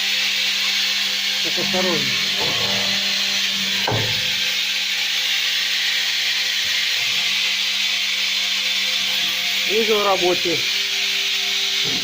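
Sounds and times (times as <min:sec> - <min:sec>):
machine motor hum with hiss: 0:00.0 - 0:12.0.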